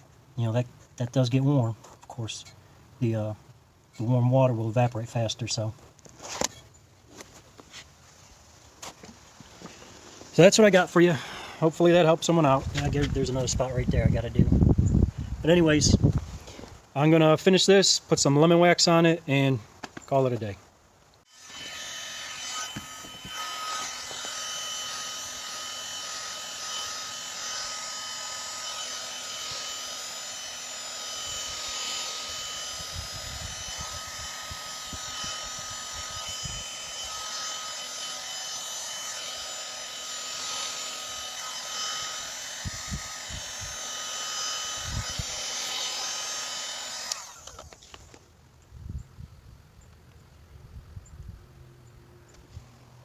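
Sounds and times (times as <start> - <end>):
hot-air blower whining: 21.5 - 36.6, 41.4 - 47.8.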